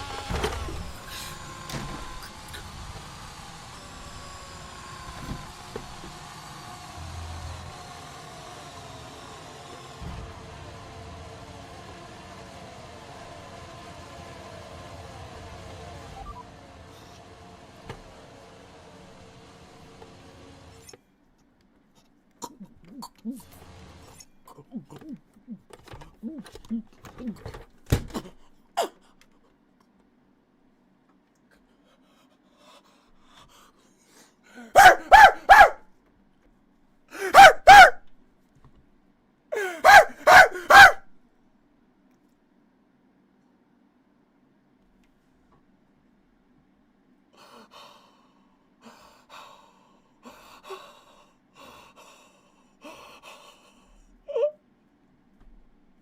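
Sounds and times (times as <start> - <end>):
short vocal yelps: 34.7 - 35.8, 37.2 - 38.0, 39.6 - 41.0
person gasping for breath: 37.1 - 37.4, 39.5 - 39.9, 47.4 - 54.2
sharp voiced gasp: 37.1 - 37.4, 39.5 - 39.9.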